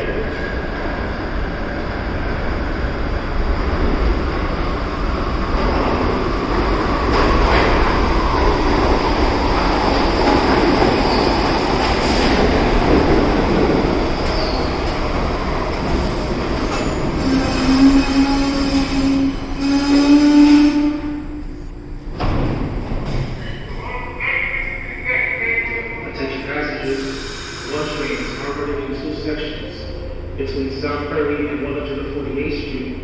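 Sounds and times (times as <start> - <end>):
subway train rumbling on rails: 0.0 - 33.0
high wheel squeal: 14.3 - 14.7, 16.8 - 21.1.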